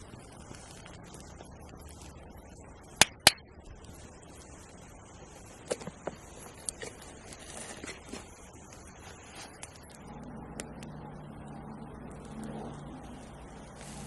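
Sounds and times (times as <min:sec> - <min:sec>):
faint steady hiss: 0:00.0 - 0:14.0
sharp clicks: 0:02.9 - 0:03.5.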